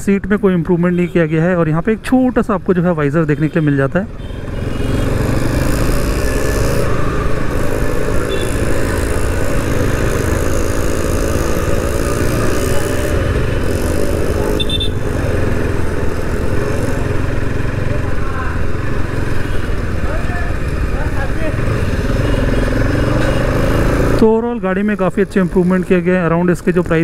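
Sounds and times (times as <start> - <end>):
road noise: 0.0 - 27.0
motorcycle engine running: 4.6 - 24.2.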